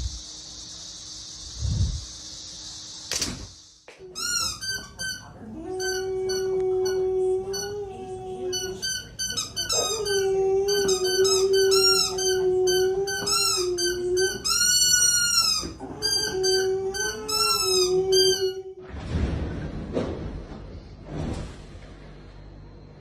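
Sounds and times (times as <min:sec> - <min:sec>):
dog howling: 0:05.3 - 0:18.8.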